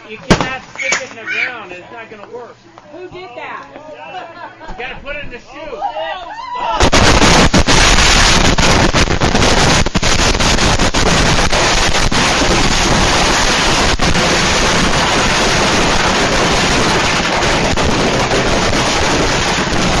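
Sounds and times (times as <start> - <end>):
fireworks exploding: 0.2 - 1.2, 6.8 - 20.0.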